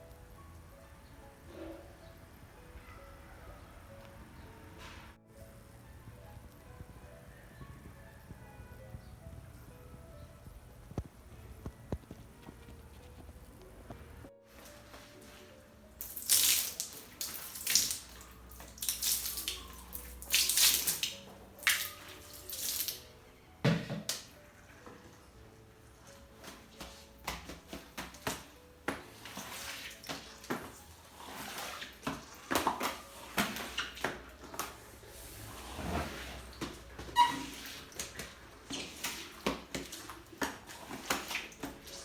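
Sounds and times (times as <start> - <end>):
water splashing and running: 26.1 - 42.0.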